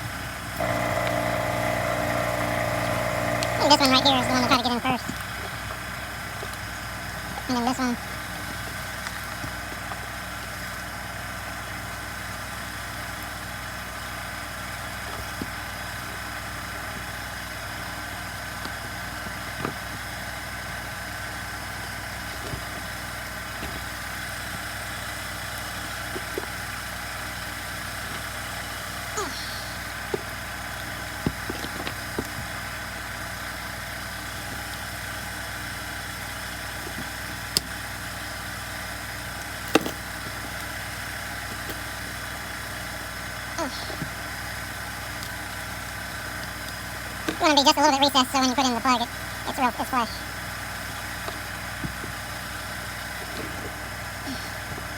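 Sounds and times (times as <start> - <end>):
steady machine hum: 0.4 - 5.1.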